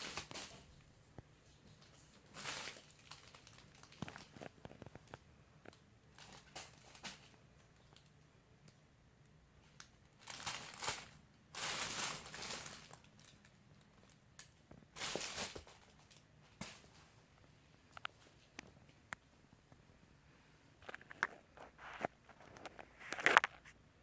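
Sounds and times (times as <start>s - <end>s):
fabric cat tunnel crinkling: 1.7s - 5.2s, 10.2s - 13.4s, 14.9s - 16.9s
small scratches and clicks: 20.8s - 23.8s.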